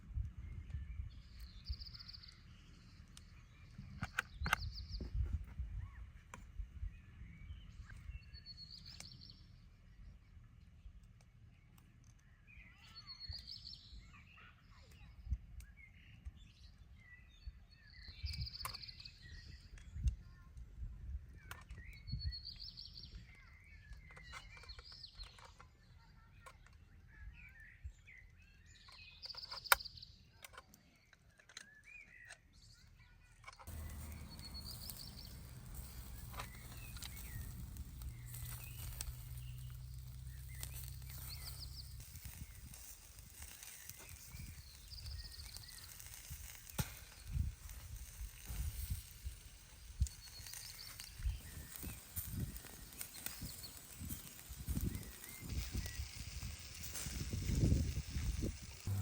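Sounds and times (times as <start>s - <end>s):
birds chirping: 0.4s - 20.5s, 21.3s - 59.0s
steady hiss: 33.7s - 59.0s.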